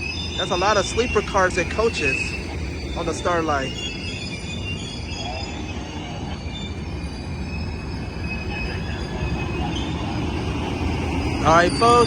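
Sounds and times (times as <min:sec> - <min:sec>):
high-pitched wheel squeals: 0:00.0 - 0:12.0
train cars rumbling: 0:00.0 - 0:12.0.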